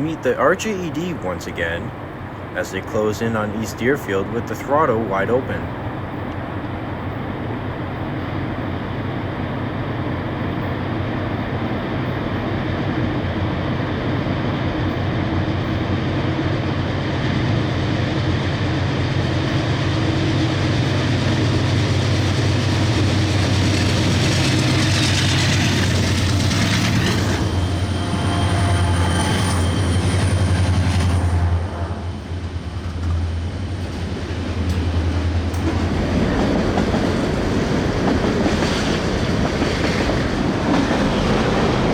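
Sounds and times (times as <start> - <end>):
diesel locomotive engines droning: 0.0 - 41.9
high squealing tones: 27.0 - 31.7.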